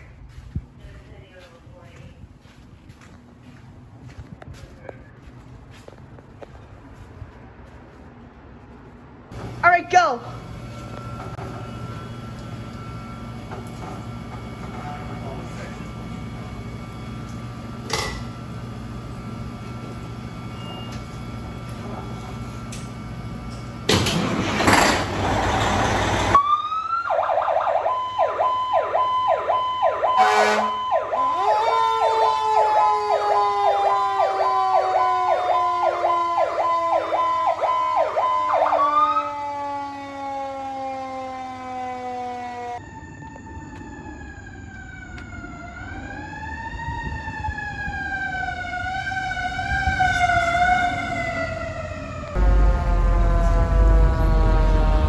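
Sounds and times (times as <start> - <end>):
engine rumble: 0.0 - 26.8, 42.9 - 55.0
falling siren tone: 25.7 - 55.0
wail siren rising and falling: 26.0 - 55.0
electronic yelp siren: 26.3 - 55.0
horn blast: 30.1 - 31.4, 52.4 - 55.0.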